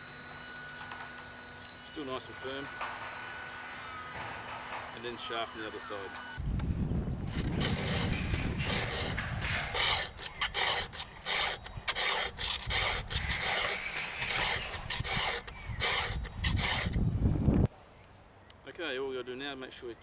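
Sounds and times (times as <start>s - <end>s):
file rasping on saw chain: 7.2s - 17.0s.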